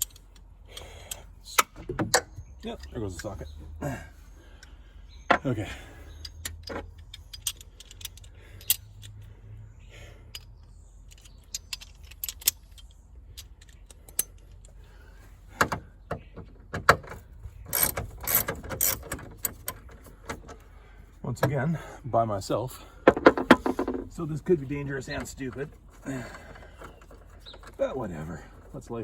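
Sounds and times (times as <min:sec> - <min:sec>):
hand tools and bolts clinking: 0:00.0 - 0:03.6, 0:04.6 - 0:09.4, 0:10.0 - 0:15.0, 0:16.8 - 0:20.6.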